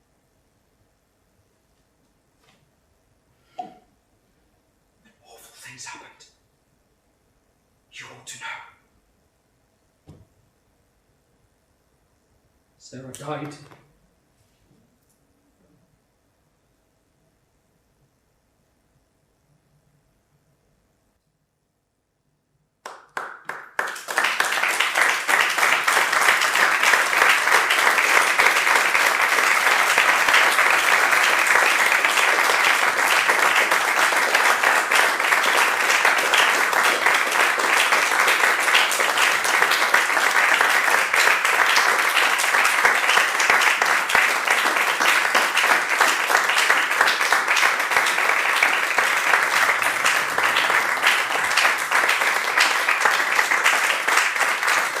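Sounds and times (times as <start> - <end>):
audience applauding: 22.8 - 55.0.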